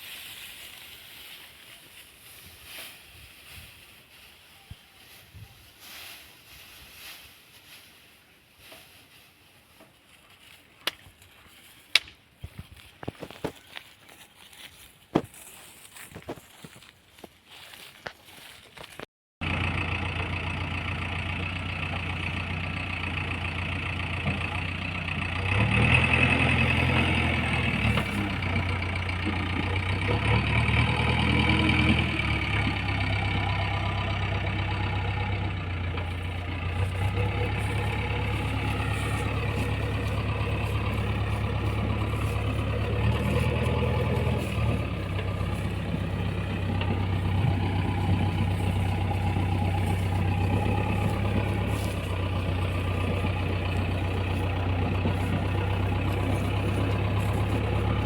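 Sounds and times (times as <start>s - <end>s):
diesel engine running: 19.4s - 58.0s.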